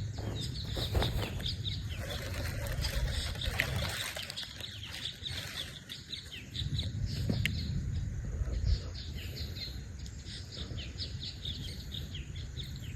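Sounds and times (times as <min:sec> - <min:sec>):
songbirds chirping: 0:00.0 - 0:12.9
low rumble: 0:06.5 - 0:12.9.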